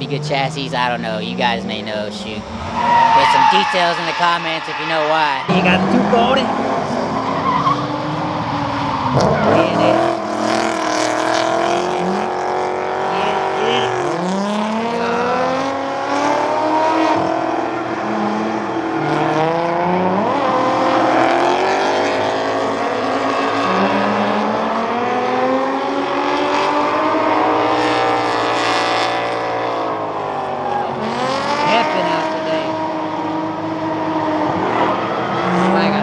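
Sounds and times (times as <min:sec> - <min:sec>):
car engines revving: 0:00.0 - 0:36.0
tyres squealing: 0:02.1 - 0:15.6.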